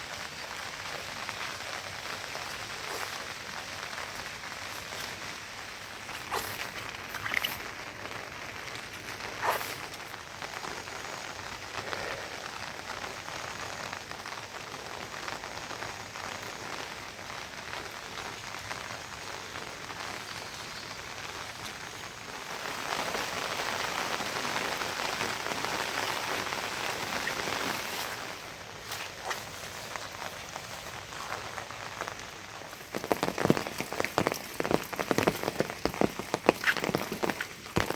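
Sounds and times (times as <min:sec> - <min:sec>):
steady rain falling: 0:00.0 - 0:37.9
loud raindrop taps: 0:30.5 - 0:37.9.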